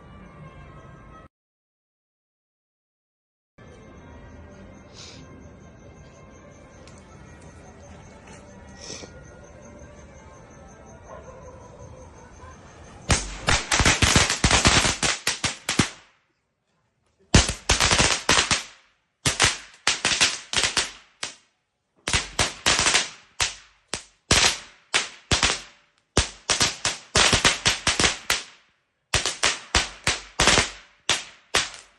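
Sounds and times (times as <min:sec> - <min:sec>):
faint background music: 0:00.0 - 0:01.3, 0:03.6 - 0:15.2
firecrackers cracking: 0:13.1 - 0:16.2, 0:17.3 - 0:31.9.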